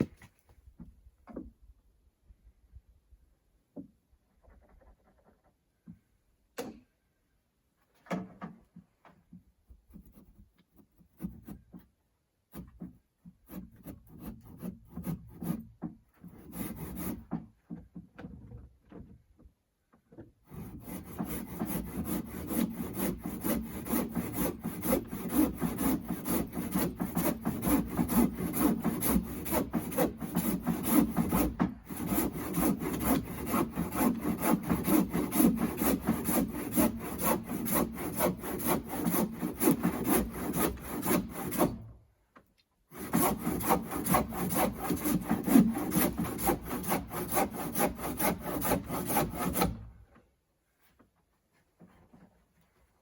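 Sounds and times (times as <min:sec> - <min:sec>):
knocks and handling of wood: 0:00.0 - 0:01.8, 0:03.6 - 0:07.1, 0:07.8 - 0:13.7, 0:17.1 - 0:20.5, 0:25.9 - 0:36.2, 0:49.6 - 0:53.0
hand saw cutting wood: 0:09.9 - 0:17.9, 0:20.4 - 0:42.0, 0:42.9 - 0:50.1.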